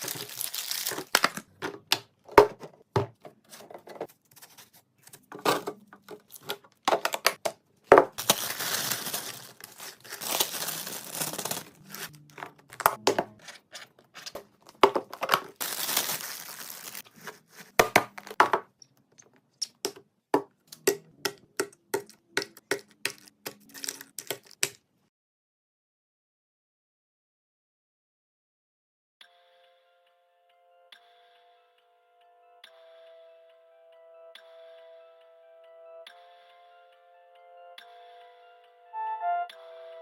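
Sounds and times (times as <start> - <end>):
plastic packaging crinkling: 0.0 - 1.6, 6.0 - 13.0, 13.6 - 18.4, 22.6 - 24.8
items tapping and clicking: 0.0 - 4.4, 5.0 - 10.6, 11.5 - 15.8, 17.1 - 24.9.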